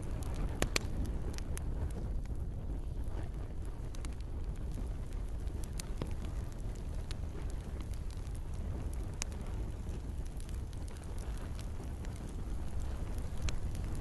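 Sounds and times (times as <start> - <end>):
campfire crackles and pops: 0.0 - 14.0
flames rushing: 0.0 - 14.0.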